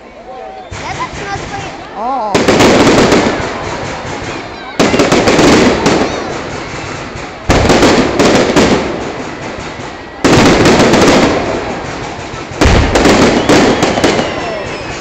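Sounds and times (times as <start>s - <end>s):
fireworks bangs: 0.7s - 15.0s
fireworks crackling: 0.7s - 15.0s.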